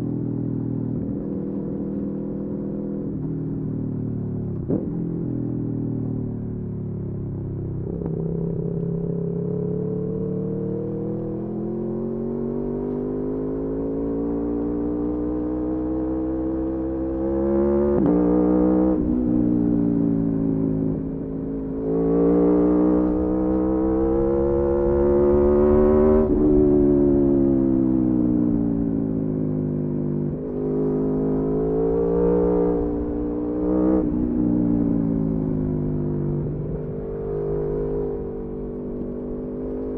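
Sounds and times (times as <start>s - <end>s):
motorcycle engine revving: 7.8s - 39.9s.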